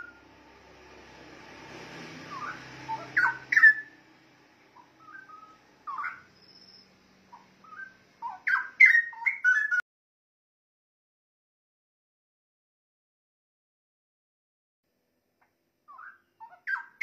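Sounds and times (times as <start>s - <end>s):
bird singing whistled phrases: 2.3s - 4.0s, 5.0s - 6.9s, 7.6s - 9.8s, 15.9s - 17.0s.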